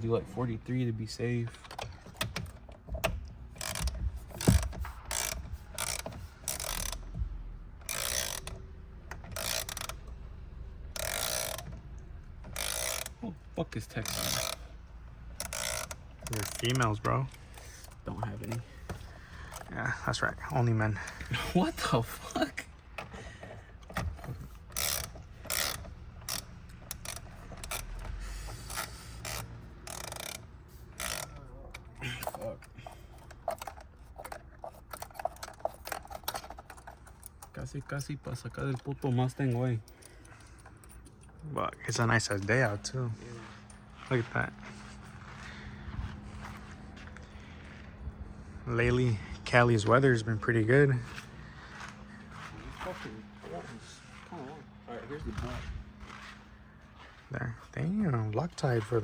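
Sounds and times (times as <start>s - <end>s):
socket ratchet clicking: 1.6s - 7.1s, 7.8s - 10.2s, 10.9s - 13.2s, 14.0s - 14.7s, 15.3s - 19.7s, 23.8s - 42.4s.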